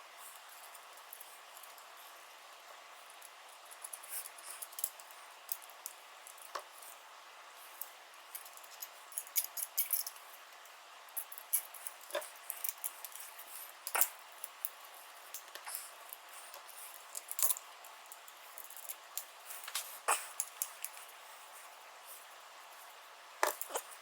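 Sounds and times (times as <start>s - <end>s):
hand tools clicking and clinking: 8.3s - 10.2s.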